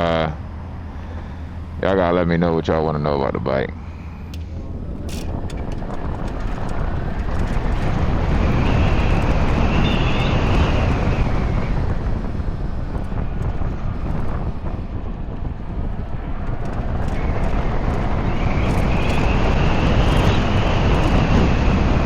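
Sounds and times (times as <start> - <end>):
faint high whine: 0.0 - 5.6, 7.4 - 14.7
tyre and road noise: 0.0 - 22.0
wind buffeting microphone: 0.0 - 22.0.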